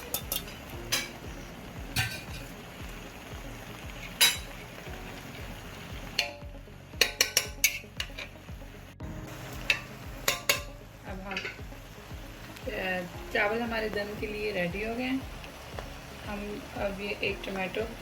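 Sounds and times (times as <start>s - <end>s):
metal spoon clinking against pot: 0.0s - 1.2s, 4.2s - 4.5s, 7.0s - 8.3s, 9.7s - 10.7s.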